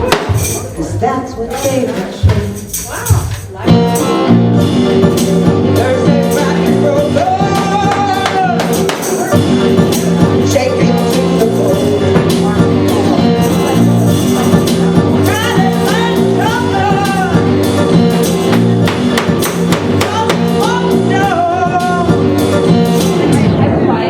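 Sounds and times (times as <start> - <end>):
live band music: 0.0 - 23.5
person singing: 0.0 - 24.0
tambourine-like percussion: 0.1 - 0.7, 2.3 - 3.6, 7.6 - 10.3, 13.2 - 16.7, 18.4 - 20.8.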